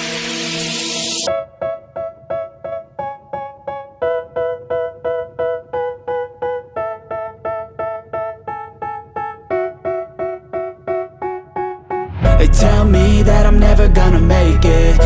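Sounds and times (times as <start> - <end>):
keyboard playing repeated chords: 0.0 - 15.0.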